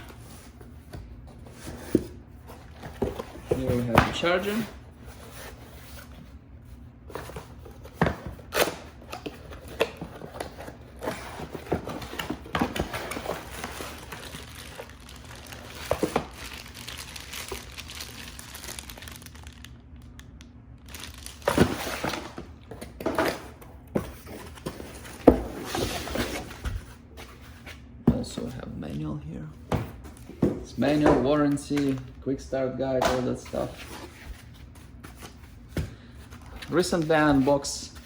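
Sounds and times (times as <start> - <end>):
plastic packaging crinkling: 12.9 - 20.2, 20.8 - 22.5.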